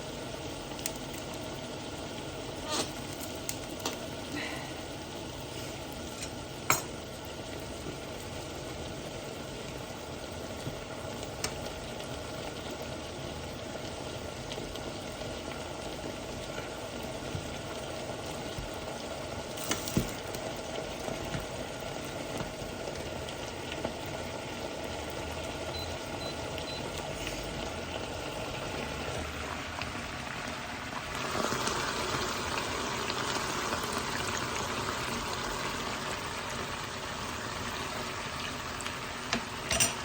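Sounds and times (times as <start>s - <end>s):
food sizzling in a pan: 0.0s - 40.0s.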